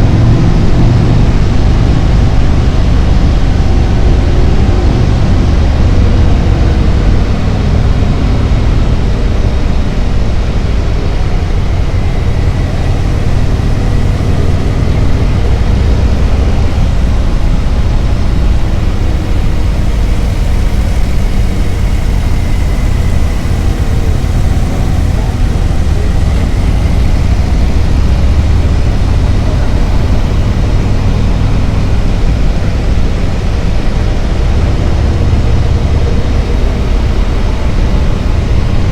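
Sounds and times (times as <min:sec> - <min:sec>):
motorcycle engine running: 0:00.0 - 0:38.9
wind rushing on microphone: 0:00.0 - 0:38.9.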